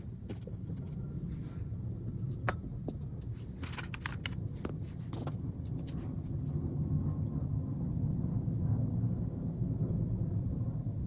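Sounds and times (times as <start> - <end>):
steady low rumble: 0.0 - 11.0
small parts and tools clicking: 3.2 - 4.4.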